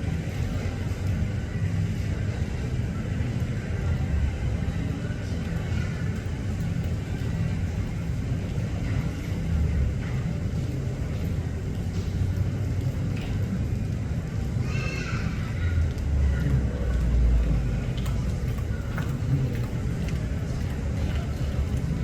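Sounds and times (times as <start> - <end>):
aircraft engines rumbling: 0.0 - 22.0.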